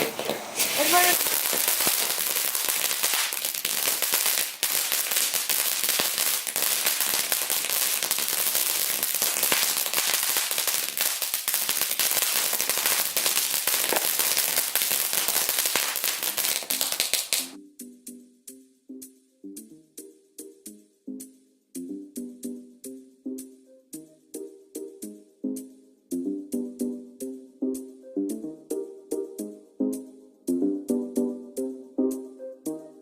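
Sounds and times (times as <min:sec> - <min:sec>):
fireworks crackling: 0:00.0 - 0:17.6.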